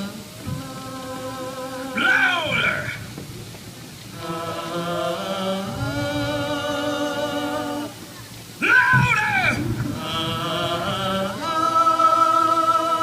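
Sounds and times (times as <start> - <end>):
group singing wordless chord: 0.0 - 13.0
person shouting: 2.0 - 3.0, 8.6 - 9.6.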